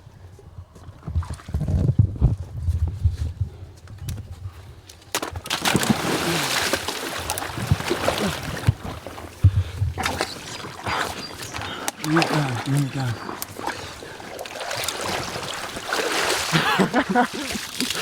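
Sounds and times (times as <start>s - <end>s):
boots splashing through water: 5.2s - 18.0s
heavy low steps: 7.6s - 10.1s.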